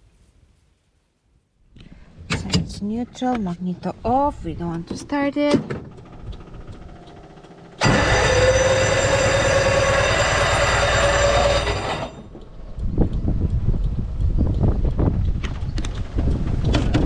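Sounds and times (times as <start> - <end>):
electric starter cranking engine: 5.6 - 12.5.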